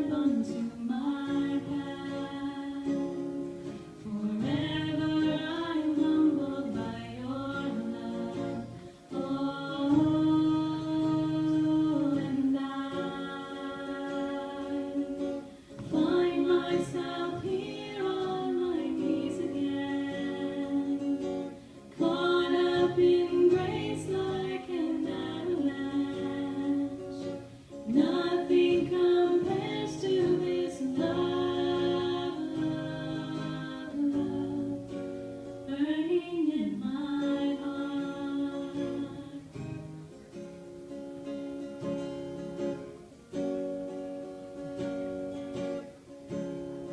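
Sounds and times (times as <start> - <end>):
woman singing a worship song: 0.0 - 39.7
strummed acoustic guitar: 0.0 - 46.9.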